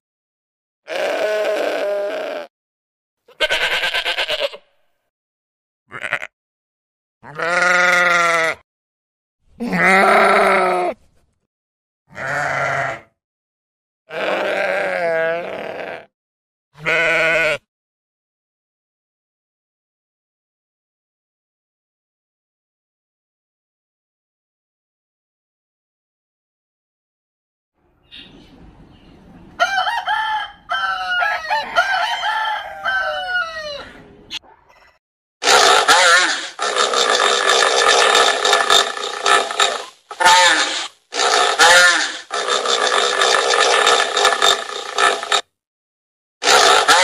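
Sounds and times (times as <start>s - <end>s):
sheep bleating: 0.9s - 2.5s, 3.3s - 4.8s, 5.9s - 6.4s, 7.2s - 8.6s, 9.6s - 11.0s, 12.1s - 13.2s, 14.1s - 16.1s, 16.8s - 17.7s, 35.4s - 45.4s, 46.4s - 47.0s
rooster crowing: 29.6s - 34.0s.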